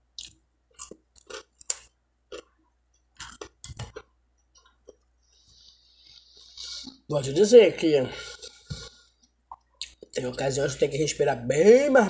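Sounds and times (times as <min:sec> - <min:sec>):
crunching toasted bread: 0:00.2 - 0:02.5.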